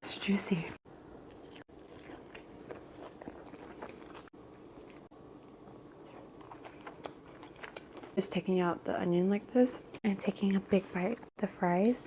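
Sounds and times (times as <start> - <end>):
chewing and biting food: 0.9 - 8.2.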